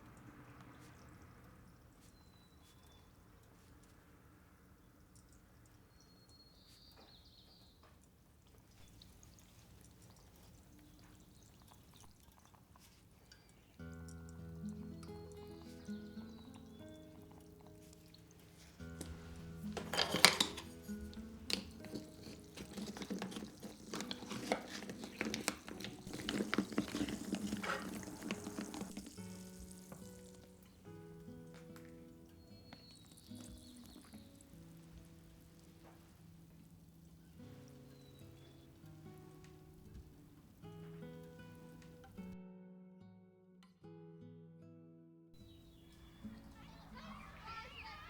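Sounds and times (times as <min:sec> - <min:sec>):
utensil stirring liquid in pot: 0:08.4 - 0:36.6.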